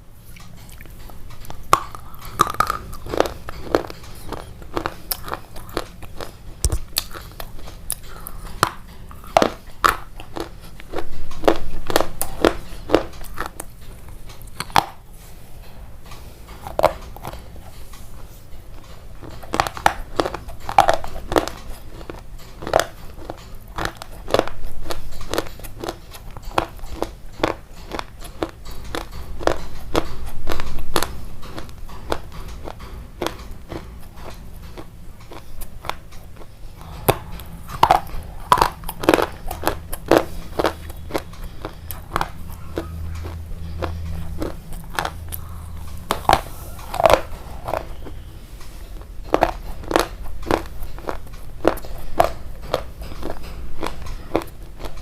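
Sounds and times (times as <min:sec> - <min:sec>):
crunchy bites and chewing: 0:00.3 - 0:15.1, 0:16.6 - 0:18.0, 0:18.7 - 0:48.3, 0:49.0 - 0:55.0.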